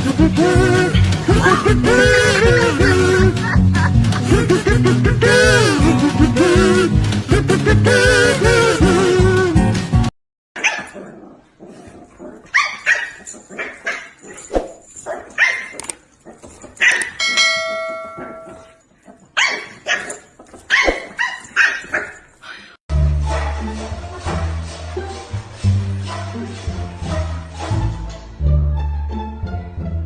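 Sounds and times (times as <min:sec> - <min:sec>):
dog barking: 0:10.6 - 0:11.2, 0:12.5 - 0:14.3, 0:15.1 - 0:15.8, 0:16.8 - 0:17.2, 0:19.4 - 0:22.2
steady ringing tone: 0:17.2 - 0:18.8.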